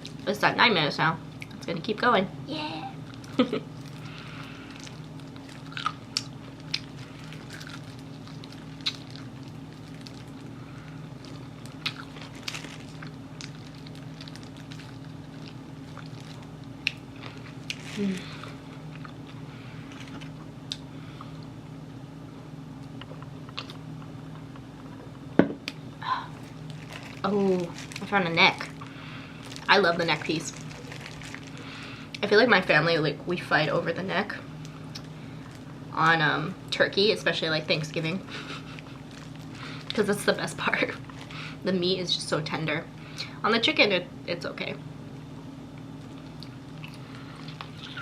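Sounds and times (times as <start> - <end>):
steady low hum: 0.0 - 48.0
biting and chewing fried chicken: 3.0 - 21.5, 30.3 - 32.2, 38.3 - 40.0, 45.9 - 48.0.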